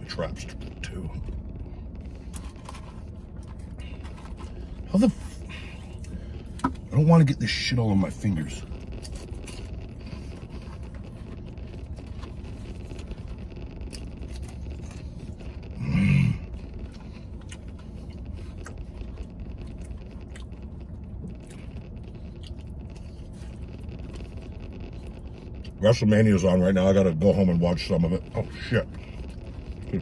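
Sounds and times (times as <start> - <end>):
low vehicle cabin hum: 0.0 - 30.0
person chewing: 8.7 - 25.8, 28.8 - 30.0.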